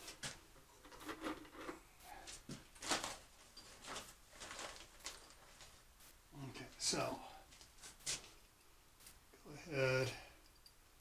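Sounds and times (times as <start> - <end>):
hands handling plastic pipe: 0.0 - 5.8.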